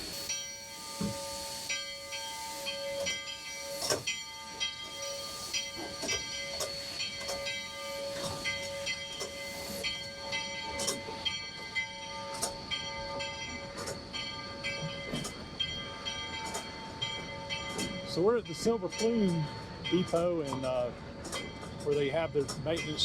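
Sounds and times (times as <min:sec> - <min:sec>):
steam hissing: 0:00.0 - 0:17.0
high ringing tones: 0:00.2 - 0:23.0.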